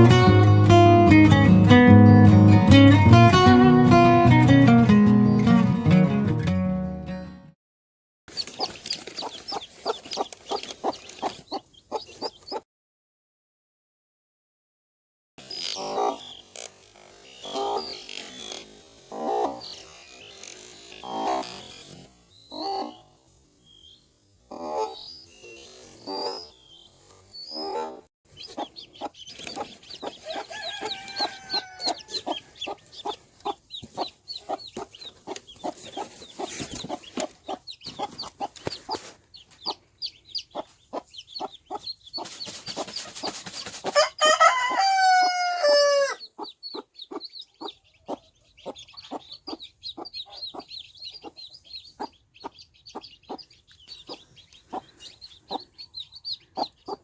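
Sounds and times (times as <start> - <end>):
chicks peeping: 8.3 - 12.6, 15.4 - 57.0
hen clucking: 8.3 - 12.6, 15.6 - 16.4, 17.4 - 18.1, 19.1 - 19.8, 21.0 - 21.8, 22.5 - 23.0, 24.5 - 25.2, 26.0 - 57.0
rooster crowing: 30.0 - 32.9, 43.9 - 46.3.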